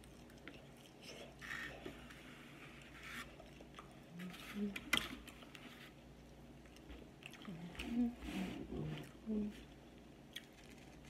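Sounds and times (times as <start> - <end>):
person chewing and smacking: 0.0 - 1.9, 3.2 - 4.2, 6.6 - 8.0, 10.2 - 11.0.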